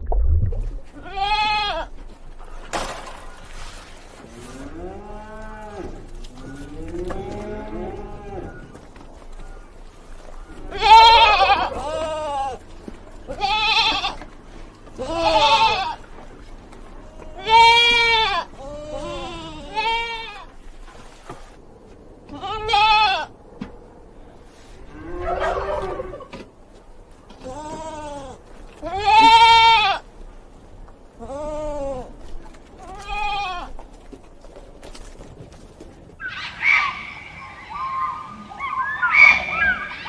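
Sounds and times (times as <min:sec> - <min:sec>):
sheep or goat bleating: 0:00.9 - 0:01.9, 0:04.4 - 0:08.6, 0:10.7 - 0:12.6, 0:13.3 - 0:14.3, 0:14.9 - 0:16.1, 0:17.0 - 0:20.5, 0:22.3 - 0:23.3, 0:27.4 - 0:30.0, 0:31.2 - 0:33.8.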